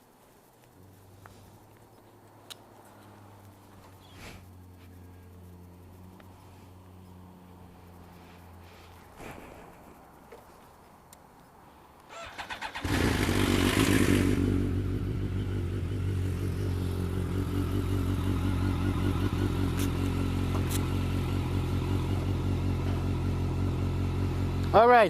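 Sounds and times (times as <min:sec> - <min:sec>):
motorcycle engine starting and idling: 0:12.1 - 0:25.0.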